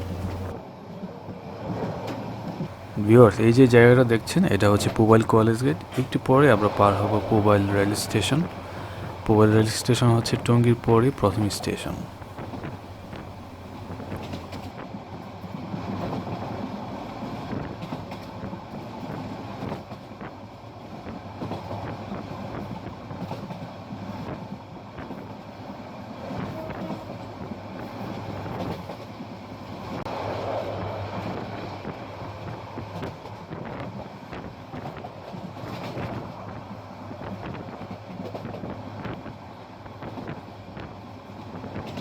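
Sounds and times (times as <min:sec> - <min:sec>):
train coaches rumbling: 0:00.0 - 0:00.5, 0:02.7 - 0:14.7
wheels clicking over rails: 0:00.0 - 0:00.5, 0:02.8 - 0:14.7.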